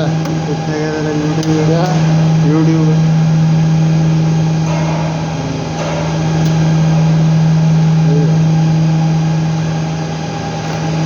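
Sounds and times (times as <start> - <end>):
loud low machine hum: 0.0 - 11.0.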